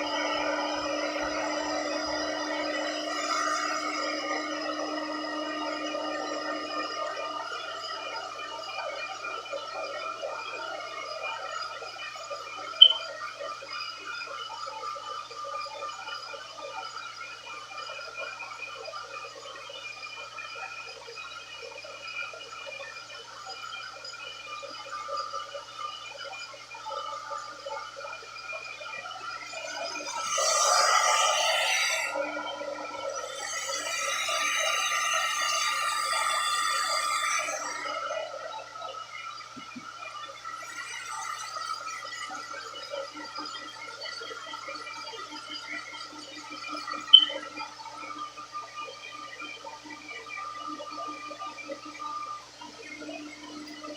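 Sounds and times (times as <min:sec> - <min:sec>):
hair dryer motor whine: 0:00.0 - 0:08.2
short high-pitched blip: 0:12.8 - 0:13.0, 0:47.1 - 0:47.4.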